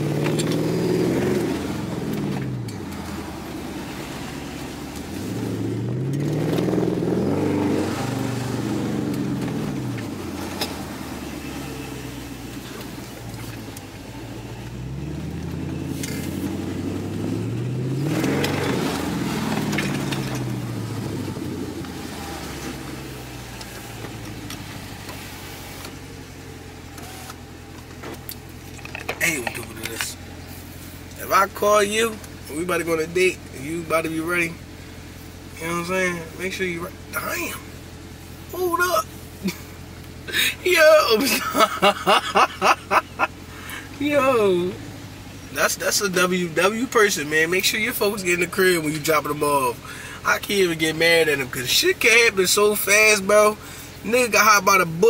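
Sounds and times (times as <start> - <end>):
car engine revving from cabin: 0.0 - 27.7.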